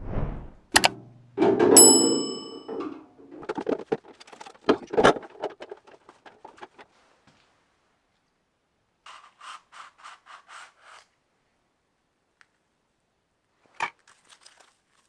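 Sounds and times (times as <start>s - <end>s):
metal part clanging: 0.8s - 2.9s.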